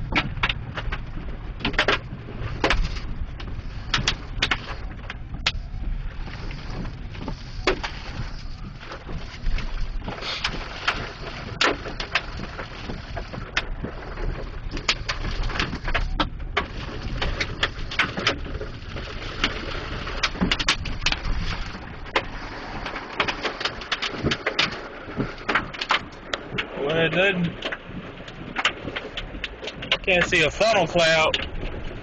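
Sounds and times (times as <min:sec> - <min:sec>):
heavy rain: 0:00.0 - 0:32.0
hailstones knocking on car: 0:06.8 - 0:32.0.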